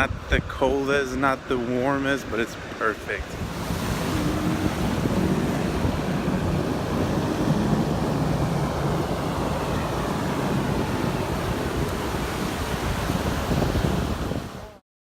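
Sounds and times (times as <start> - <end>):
wind buffeting microphone: 0.0 - 1.9, 2.7 - 14.8
low rumble: 3.4 - 13.7.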